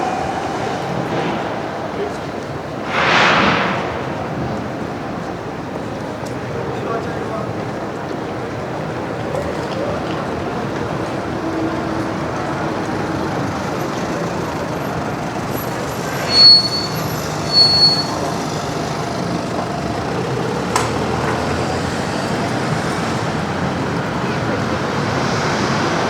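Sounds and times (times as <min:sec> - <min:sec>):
loud high-pitched squeals: 0:00.0 - 0:03.0, 0:10.8 - 0:23.4
city street traffic: 0:00.0 - 0:26.0.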